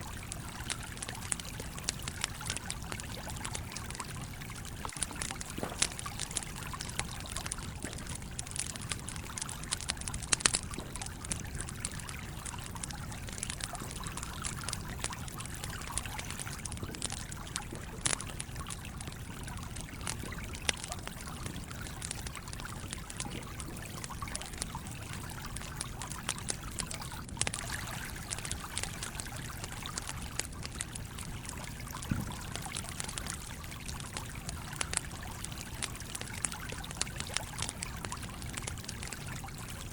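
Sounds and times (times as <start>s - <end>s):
campfire crackling and popping: 0.0s - 39.9s
stream trickling: 0.0s - 39.9s.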